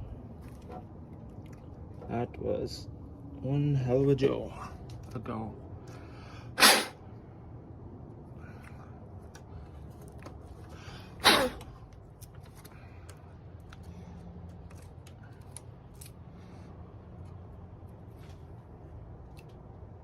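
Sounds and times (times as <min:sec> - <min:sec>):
breath drawn in: 0:06.6 - 0:07.0, 0:10.9 - 0:11.6
person sneezing: 0:06.6 - 0:07.0, 0:11.2 - 0:11.7.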